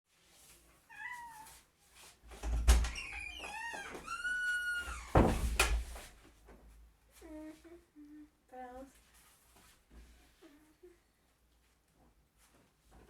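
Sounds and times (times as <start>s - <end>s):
cat meowing: 0.9s - 1.6s.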